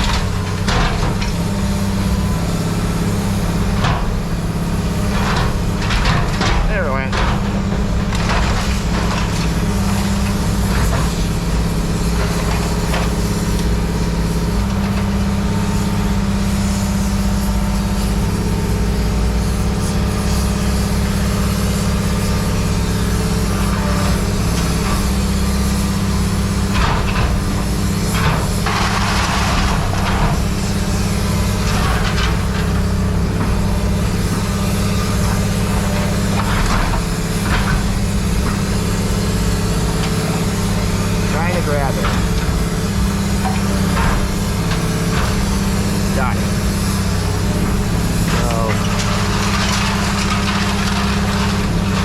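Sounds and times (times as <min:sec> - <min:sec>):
engine drone: 0:00.0 - 0:52.0
metallic clanks and scrapes: 0:26.7 - 0:45.6, 0:47.0 - 0:52.0.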